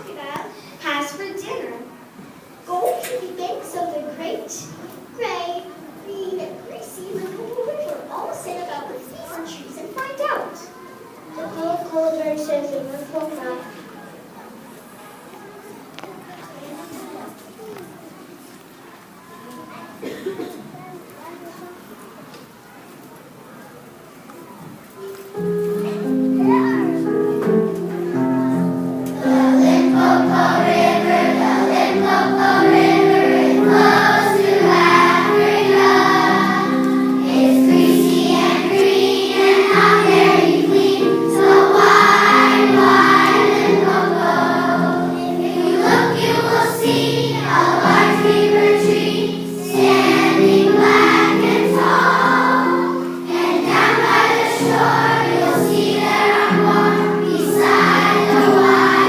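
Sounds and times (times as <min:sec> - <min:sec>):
instrumental accompaniment: 0:25.0 - 0:59.0
children singing in chorus: 0:29.1 - 0:59.0.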